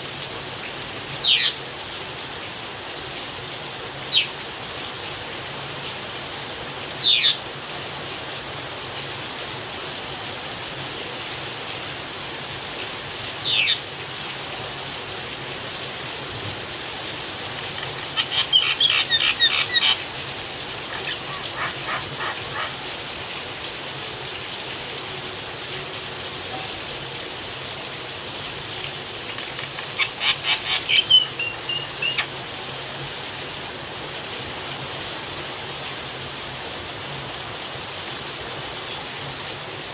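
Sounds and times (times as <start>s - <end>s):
rain falling: 0.0s - 39.9s
bird calling and chattering: 1.2s - 1.6s, 7.0s - 7.4s, 17.4s - 23.1s, 29.2s - 32.5s.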